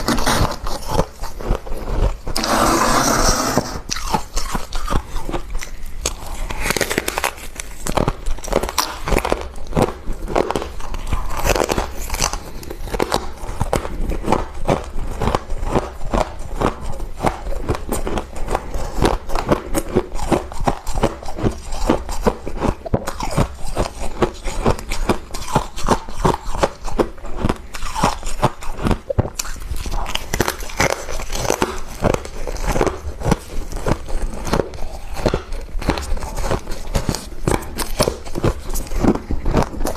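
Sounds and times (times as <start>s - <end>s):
crunchy chewing of ice: 0.0s - 39.9s.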